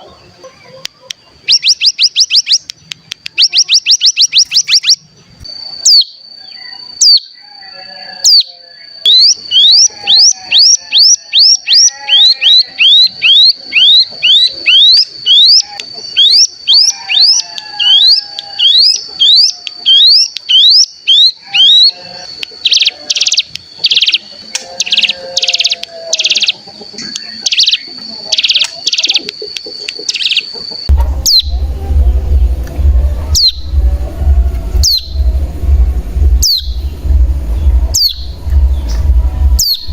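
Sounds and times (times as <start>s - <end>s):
high bird chirps: 0.7s - 39.9s
low hum: 30.9s - 39.9s.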